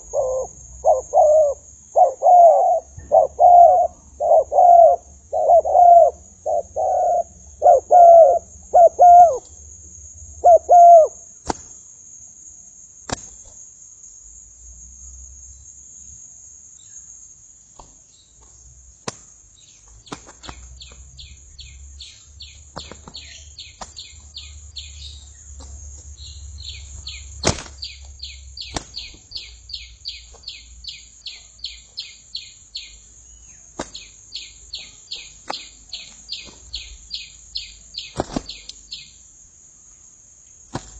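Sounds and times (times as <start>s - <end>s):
dove cooing: 0.0s - 9.4s, 10.4s - 11.2s
small bird chirping: 0.0s - 9.5s, 19.6s - 39.2s.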